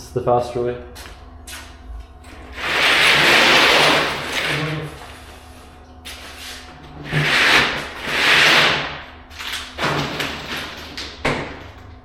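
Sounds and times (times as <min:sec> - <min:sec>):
underlayment sliding across concrete: 0:02.6 - 0:04.8.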